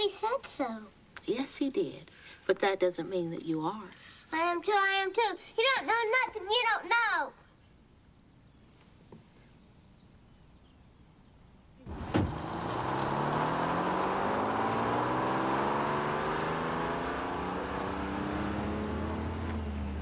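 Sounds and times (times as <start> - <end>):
vintage car engine accelerating: 11.8 - 20.0.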